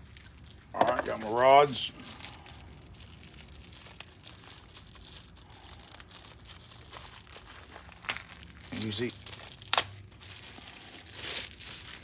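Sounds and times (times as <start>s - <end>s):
light rustling of parts: 0.6s - 2.5s.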